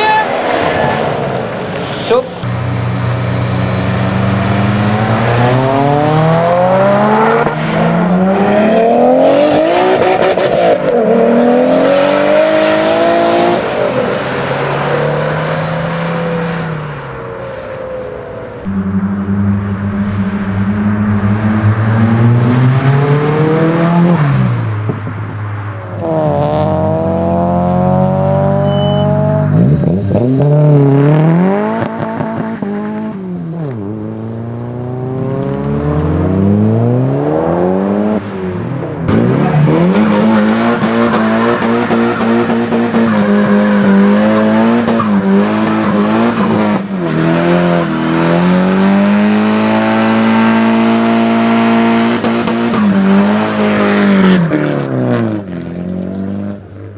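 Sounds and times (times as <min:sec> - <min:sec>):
car engine revving: 0:00.0 - 0:56.7
tyre squeal: 0:01.8 - 0:08.2, 0:28.5 - 0:29.4.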